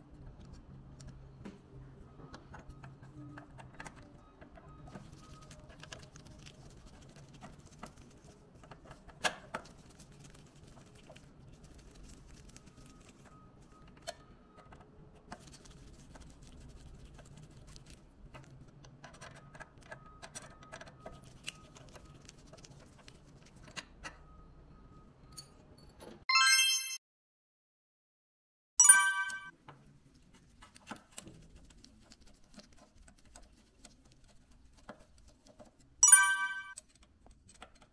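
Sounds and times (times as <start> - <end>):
screwdriver clicks and scraping: 36.7 - 37.9.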